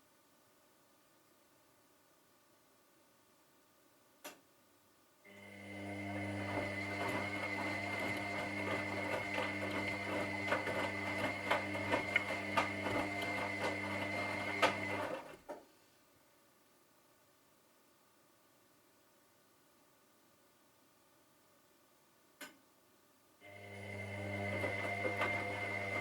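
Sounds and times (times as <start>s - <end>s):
washing machine motor whine: 5.4s - 15.3s, 23.5s - 26.0s.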